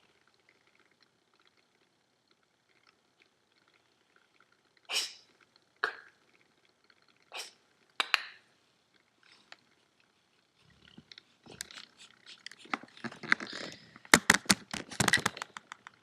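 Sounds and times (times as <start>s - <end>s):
irregular clicks and rustling: 8.9s - 16.0s.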